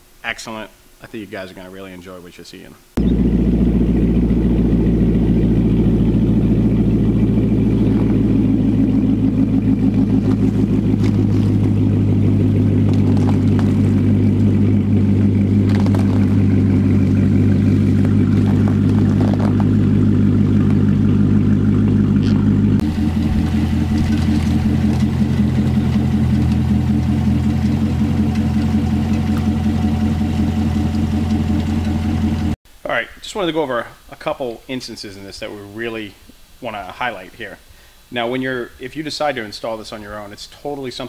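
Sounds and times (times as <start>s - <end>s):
car engine idling: 3.0s - 32.6s.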